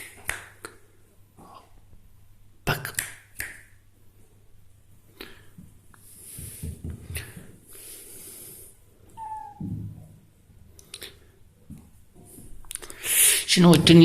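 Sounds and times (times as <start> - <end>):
kitten mewing: 9.2 - 9.8.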